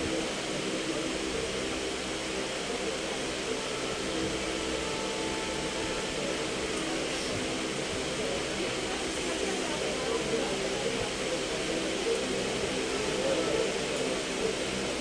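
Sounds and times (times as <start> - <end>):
heavy rain hiss: 0.0 - 15.0.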